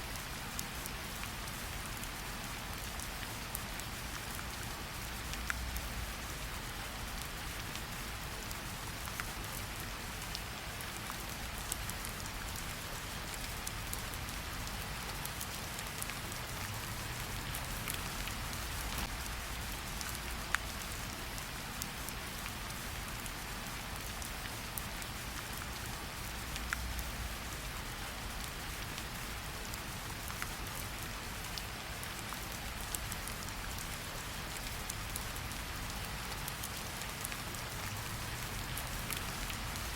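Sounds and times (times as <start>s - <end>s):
steady rain hiss: 0.0s - 39.9s
raindrops ticking: 10.2s - 21.0s, 21.9s - 39.9s.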